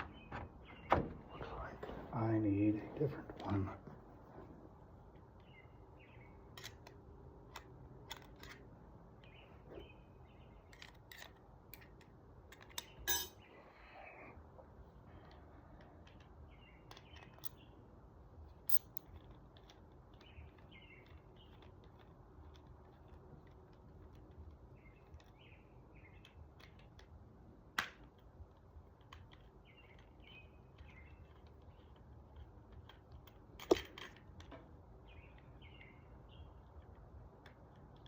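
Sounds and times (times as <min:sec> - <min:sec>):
small metal clicks and clinks: 0:10.6 - 0:13.5, 0:16.0 - 0:17.6, 0:18.6 - 0:24.4.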